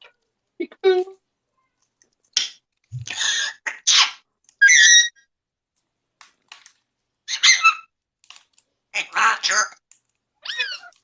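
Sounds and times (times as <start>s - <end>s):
parrot squawk: 2.4s - 5.2s, 7.3s - 7.9s, 9.0s - 9.8s, 10.4s - 11.0s.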